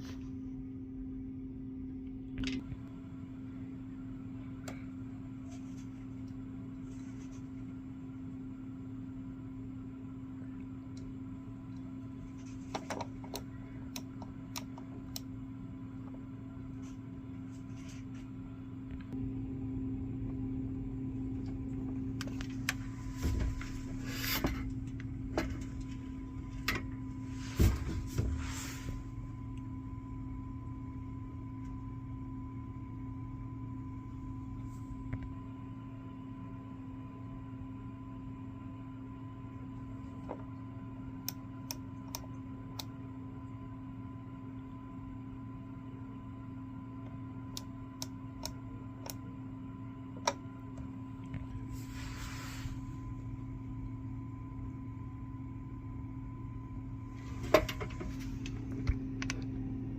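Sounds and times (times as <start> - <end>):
heat pump humming: 0.0 - 59.9.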